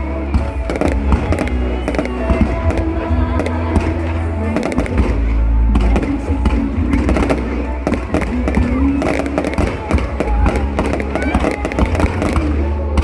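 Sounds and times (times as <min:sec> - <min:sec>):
fireworks bangs and crackles: 0:00.0 - 0:13.0
music playing: 0:00.0 - 0:13.0.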